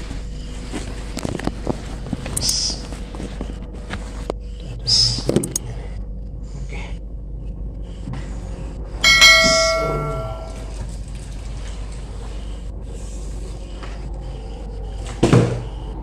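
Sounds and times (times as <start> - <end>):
metallic ring: 9.0 - 10.8.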